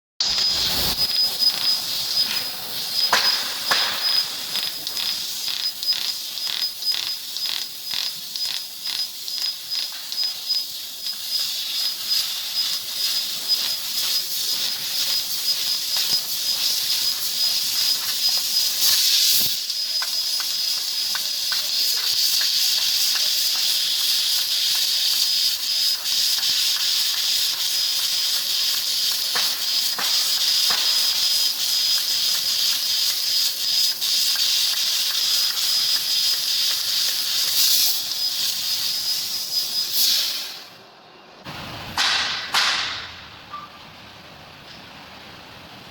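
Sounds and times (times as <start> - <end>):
thin high whistle: 0.2 - 7.6
faint crackles: 0.2 - 39.2
laser cutter gas hiss: 0.2 - 40.8.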